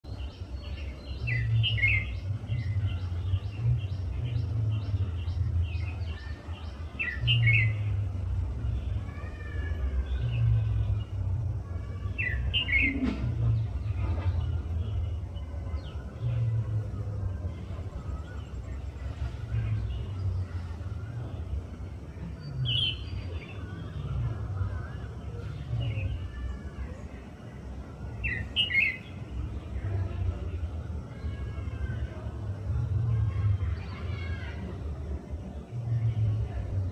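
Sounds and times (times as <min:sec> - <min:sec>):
songbirds calling: 0:00.0 - 0:36.9
steady low rumble: 0:01.1 - 0:26.4.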